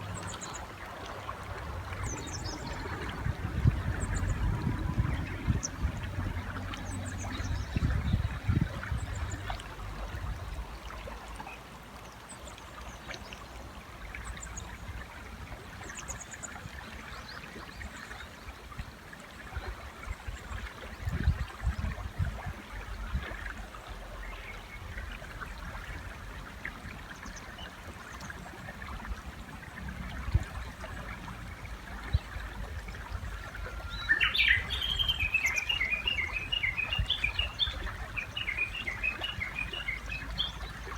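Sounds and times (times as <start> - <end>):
river flowing: 0.0 - 40.9
warbler singing: 33.6 - 40.9
small birds chirping: 33.9 - 40.9.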